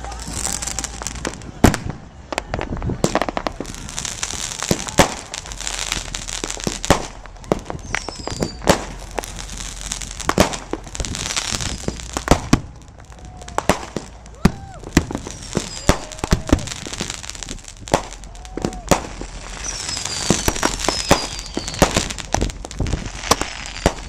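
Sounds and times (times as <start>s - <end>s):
fireworks bangs and pops: 0.0s - 24.0s
fireworks crackling hiss: 0.0s - 24.0s
falling firework whistle: 3.6s - 6.2s, 6.8s - 9.3s, 11.2s - 12.6s, 13.2s - 17.3s, 17.9s - 24.0s.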